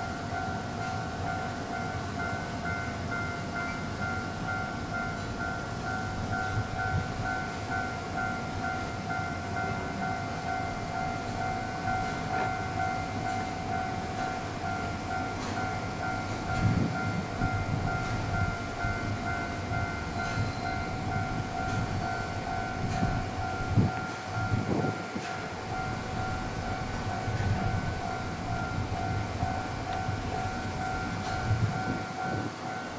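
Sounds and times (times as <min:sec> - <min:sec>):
electric train whine: 0:00.0 - 0:32.9
low train rumble: 0:00.0 - 0:32.9.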